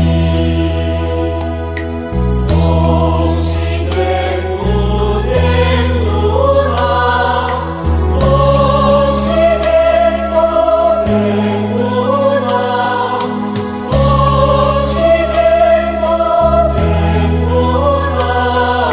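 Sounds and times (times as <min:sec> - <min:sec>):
sustained low bass notes: 0:00.0 - 0:18.9
voices singing a hymn: 0:00.0 - 0:18.9.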